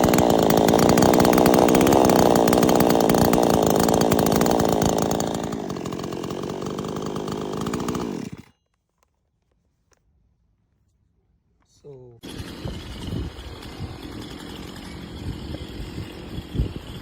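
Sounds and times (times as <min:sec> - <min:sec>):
chainsaw running: 0:00.0 - 0:08.5, 0:12.2 - 0:17.0.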